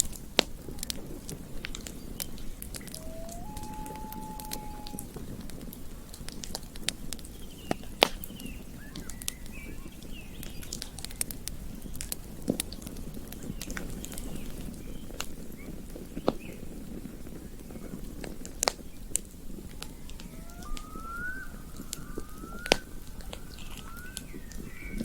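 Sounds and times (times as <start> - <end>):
faint chirps: 2.7 - 5.1, 19.8 - 25.0.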